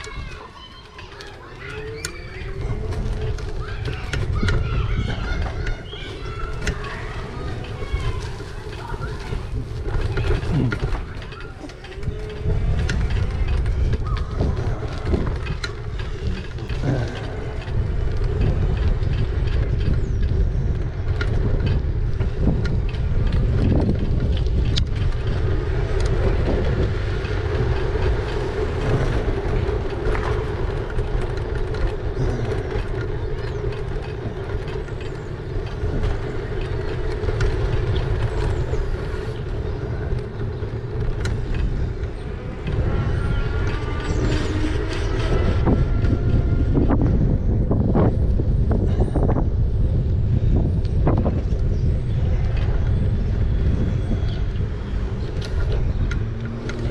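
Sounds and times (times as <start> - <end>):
wind and road noise rumble: 0.0 - 56.9
steady motor whine: 23.1 - 56.9.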